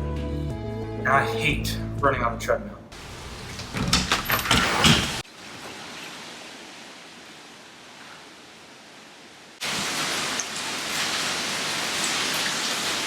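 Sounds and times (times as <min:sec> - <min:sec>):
knocks and clatter: 0:03.0 - 0:05.2
heavy rain and wind: 0:03.0 - 0:13.0.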